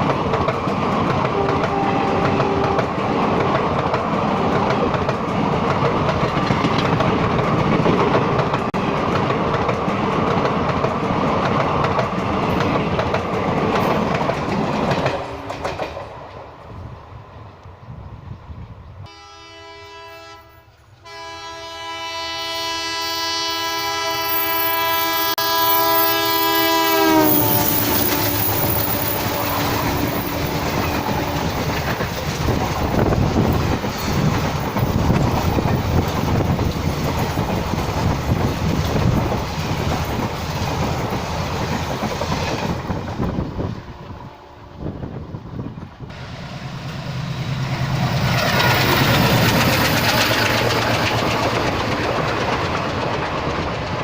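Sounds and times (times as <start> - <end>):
train rumble and wheel clatter: 0.0 - 54.0
locomotive horn blowing: 1.4 - 3.0, 19.0 - 31.5.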